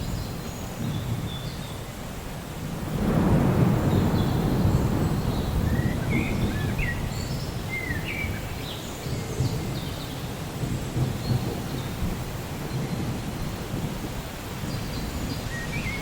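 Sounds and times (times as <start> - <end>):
distant thunder rumble: 2.7 - 15.4.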